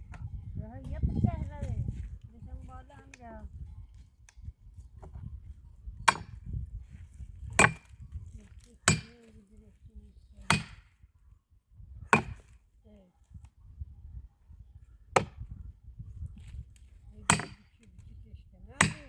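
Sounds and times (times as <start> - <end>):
axe chopping firewood: 6.0 - 6.6, 7.2 - 8.0, 8.7 - 9.4, 10.5 - 10.9, 12.1 - 12.6, 15.1 - 15.6, 16.4 - 18.0, 18.8 - 19.0.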